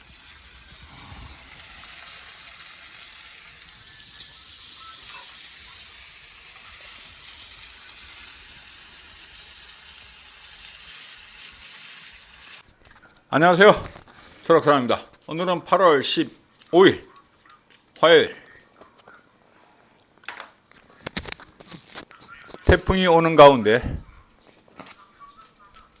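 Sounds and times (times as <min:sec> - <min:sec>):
meat sizzling on a pan: 0:00.0 - 0:12.6.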